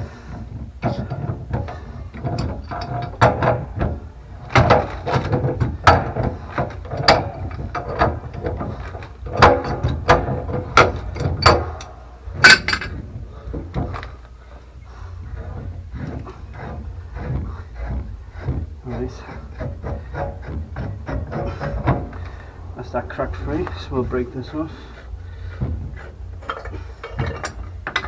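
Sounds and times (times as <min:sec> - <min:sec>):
wrench clicking and knocking on pipe: 0:00.0 - 0:14.3, 0:25.4 - 0:28.0.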